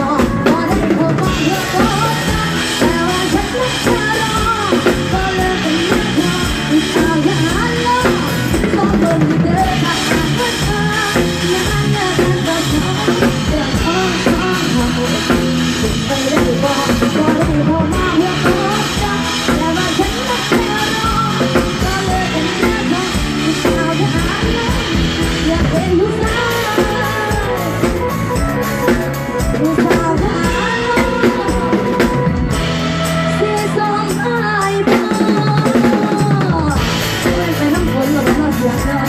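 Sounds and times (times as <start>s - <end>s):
drum kit beat: 0.0s - 39.0s
live band music: 0.0s - 39.0s
person singing: 0.0s - 39.0s.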